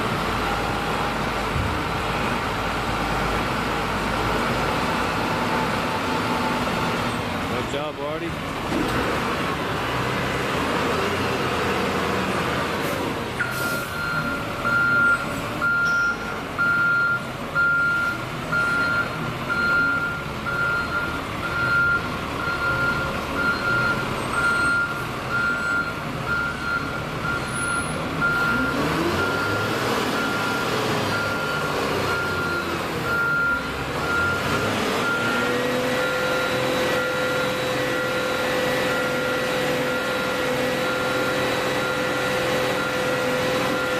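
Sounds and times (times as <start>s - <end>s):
diesel engine running: 0.0s - 43.9s
reversing alarm beeping: 13.4s - 43.9s.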